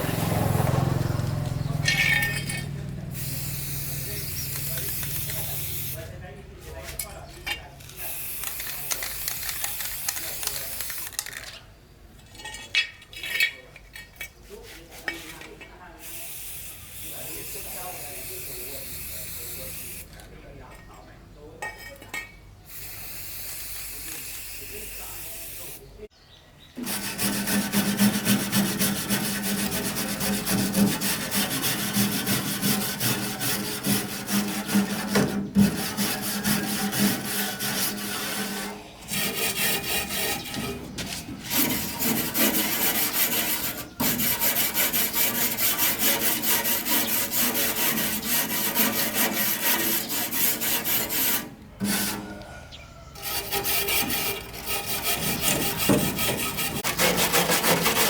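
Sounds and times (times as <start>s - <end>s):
power tool grinding: 0.0s - 6.2s, 26.8s - 58.0s.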